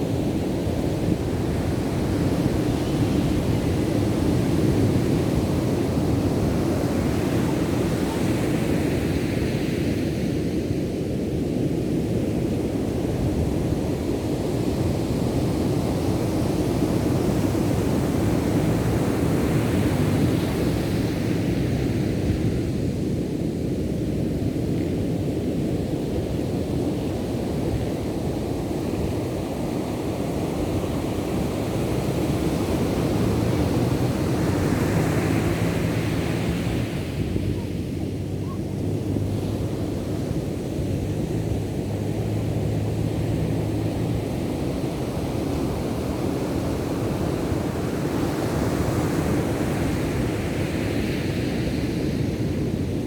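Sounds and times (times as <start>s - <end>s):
ocean surf rumbling: 24.5s - 53.0s.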